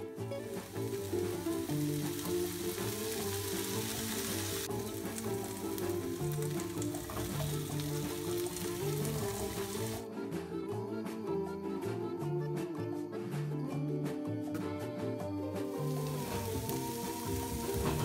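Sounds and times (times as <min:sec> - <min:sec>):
background music with bass line: 0:00.0 - 0:18.0
vegetables sizzling in a frying pan: 0:00.3 - 0:10.0, 0:15.7 - 0:18.0.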